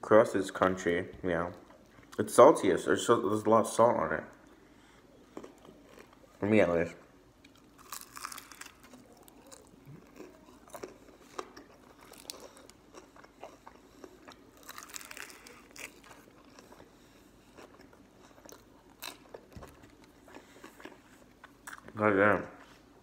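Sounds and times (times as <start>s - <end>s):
chewing crunchy fried chicken: 4.3s - 6.4s, 7.4s - 22.0s.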